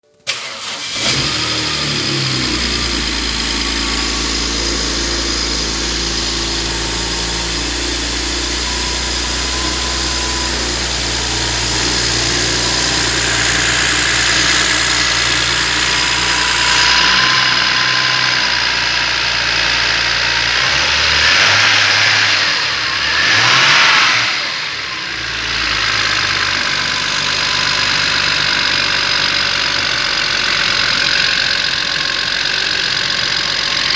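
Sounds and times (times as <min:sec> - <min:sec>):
car engine idling and revving: 0:00.3 - 0:33.9.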